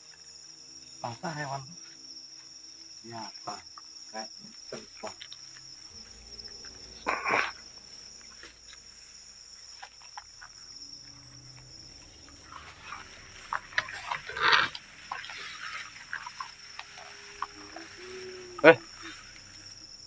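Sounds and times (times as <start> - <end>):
night insects chirring: 0.0 - 20.0
small clicks and ticks: 3.6 - 7.0.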